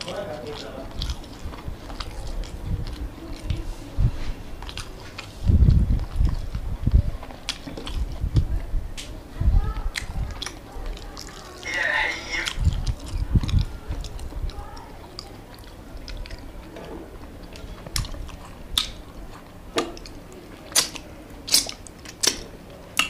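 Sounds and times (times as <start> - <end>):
close-up chewing: 0.0 - 23.0
sharp mouth smacks: 18.7 - 19.0, 20.7 - 22.4.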